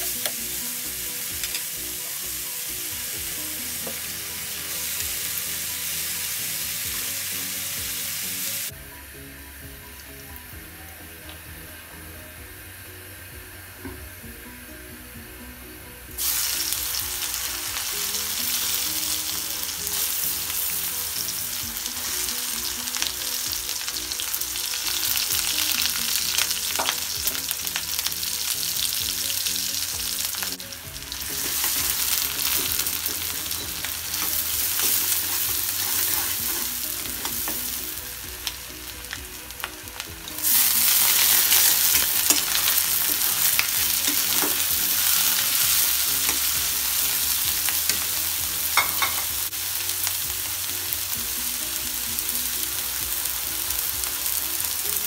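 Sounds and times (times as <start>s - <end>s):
food sizzling in hot oil: 0.0s - 14.2s, 16.1s - 55.0s
spatula stirring: 31.4s - 37.6s.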